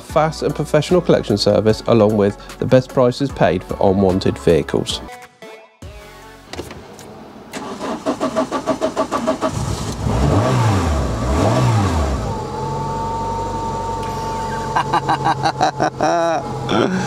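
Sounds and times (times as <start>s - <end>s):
car engine revving and idling: 7.0s - 17.0s
engine starter cranking: 7.5s - 10.8s
thin whine: 12.4s - 17.0s.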